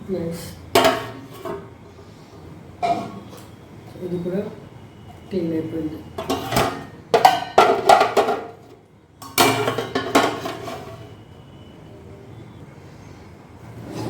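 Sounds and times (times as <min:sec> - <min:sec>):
metal utensils and pots clattering: 0:00.7 - 0:01.8, 0:02.8 - 0:03.5, 0:06.1 - 0:11.2.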